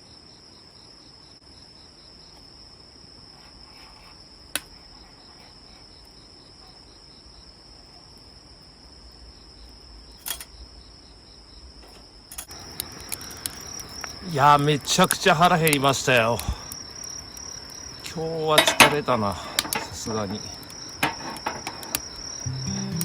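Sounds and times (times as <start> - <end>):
crickets chirping: 0.0 - 23.0
sharp clicks: 12.3 - 14.2.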